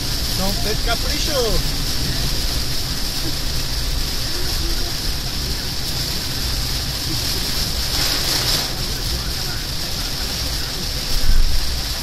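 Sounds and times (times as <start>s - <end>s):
car driving rumble: 0.0s - 12.0s
heavy rain on car roof: 0.0s - 12.0s.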